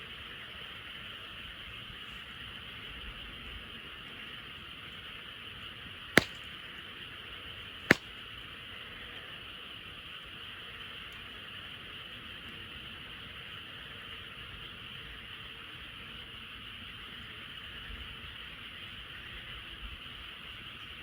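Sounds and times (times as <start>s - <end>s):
campfire wood popping: 6.2s - 6.4s.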